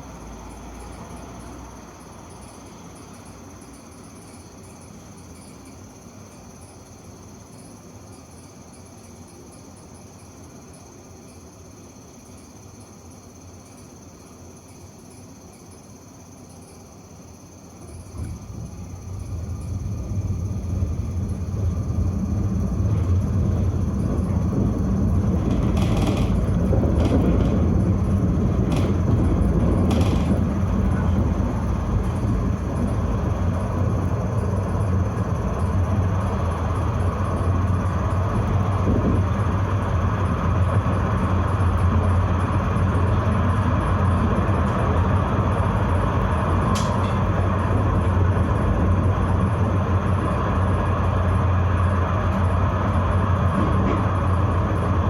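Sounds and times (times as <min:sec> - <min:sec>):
tram rumbling along track: 0:00.0 - 0:55.0
wheels squealing on rails: 0:17.9 - 0:55.0.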